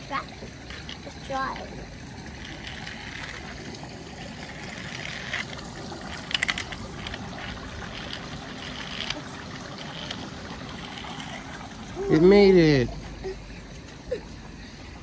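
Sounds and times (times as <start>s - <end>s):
water trickling: 0.0s - 15.0s
toy vehicle clattering down ramp: 0.1s - 3.7s, 4.3s - 12.3s.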